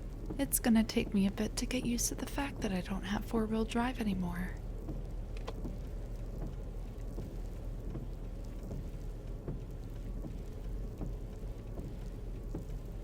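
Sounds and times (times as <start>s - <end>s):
low engine and road rumble: 0.0s - 13.0s
car tires spinning in snow: 4.8s - 13.0s.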